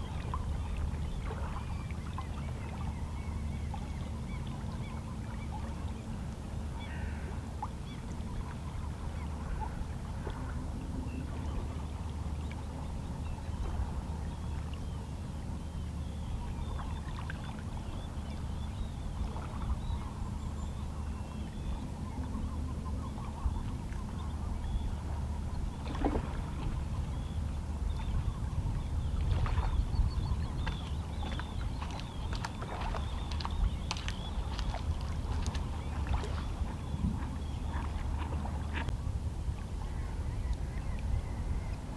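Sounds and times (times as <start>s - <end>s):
distant seabirds calling: 6.8s - 8.0s, 26.7s - 38.9s
waves lapping against rocks: 29.1s - 39.0s.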